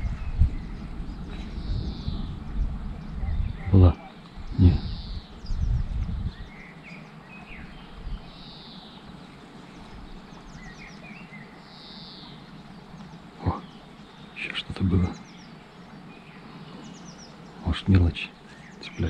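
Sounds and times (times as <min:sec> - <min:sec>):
low rumble: 0:00.0 - 0:06.6
birds calling and chirping: 0:00.0 - 0:19.0.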